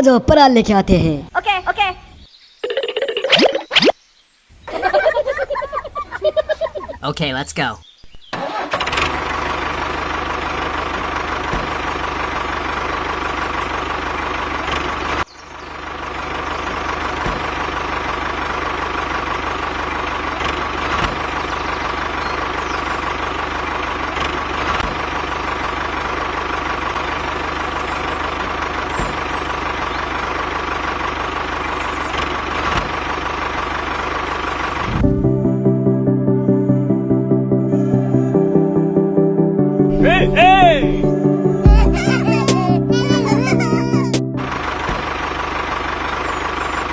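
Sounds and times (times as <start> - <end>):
tractor engine running: 6.9 - 36.1, 39.9 - 46.9.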